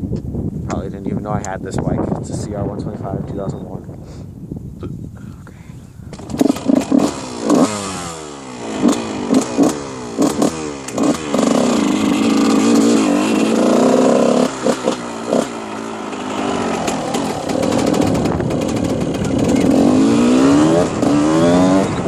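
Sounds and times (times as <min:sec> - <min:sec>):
dirt bike engine revving: 0:06.1 - 0:22.0.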